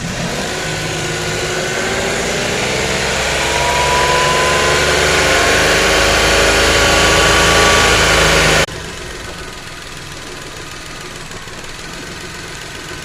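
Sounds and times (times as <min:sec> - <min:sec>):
car engine revving up: 0:00.0 - 0:09.1.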